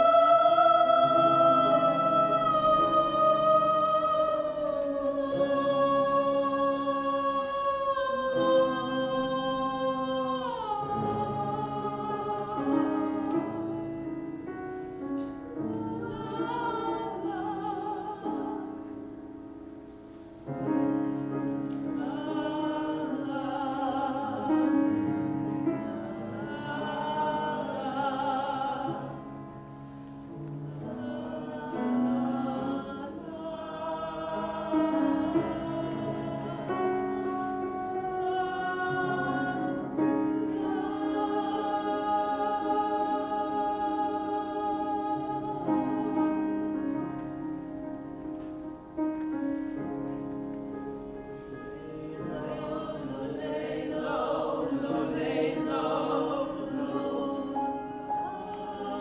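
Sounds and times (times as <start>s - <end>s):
trained voice singing with vibrato: 0.0s - 13.6s.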